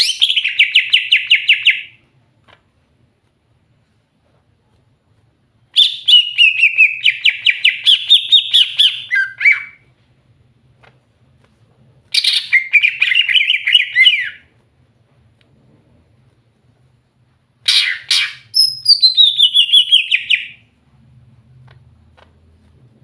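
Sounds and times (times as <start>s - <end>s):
bird singing trilled notes: 17.7s - 20.6s.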